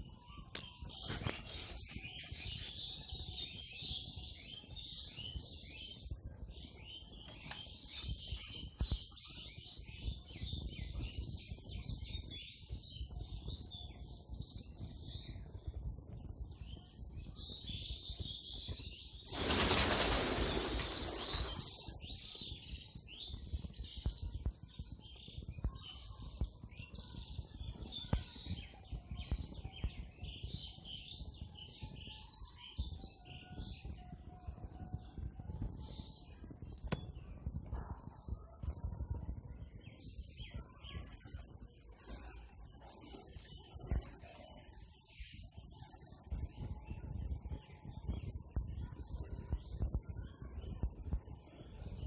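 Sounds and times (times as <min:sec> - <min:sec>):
small birds chirping: 0:00.0 - 0:52.0
pigeon wingbeats: 0:19.2 - 0:22.2.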